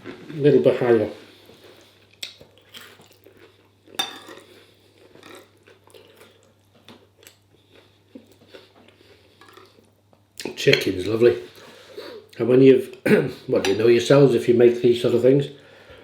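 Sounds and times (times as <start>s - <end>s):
chewing: 1.4s - 10.6s.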